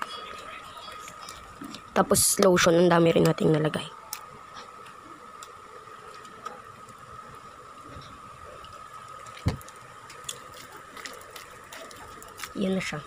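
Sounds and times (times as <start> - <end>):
faint high hum: 0.0 - 13.0
slime squishing: 9.0 - 13.0.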